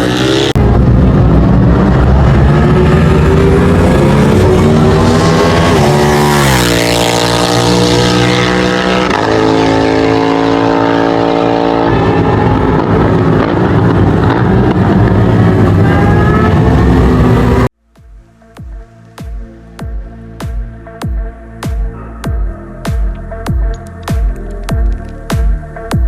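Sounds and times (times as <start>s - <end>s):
motorcycle engine revving: 0.0s - 17.7s.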